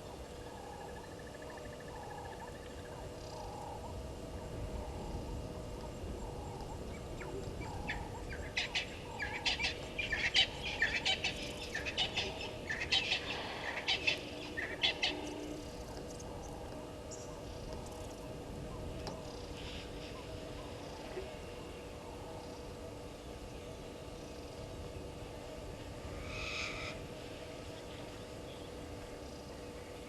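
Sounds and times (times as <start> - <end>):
wild birds calling: 0.0 - 30.0.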